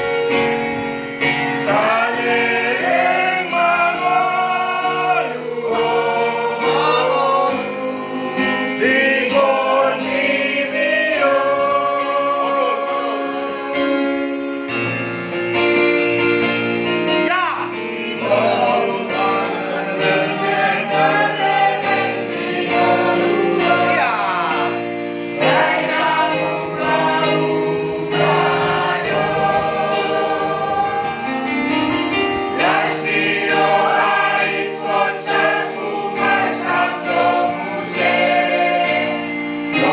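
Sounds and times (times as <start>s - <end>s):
choir singing a hymn: 0.0s - 16.7s, 17.5s - 39.9s.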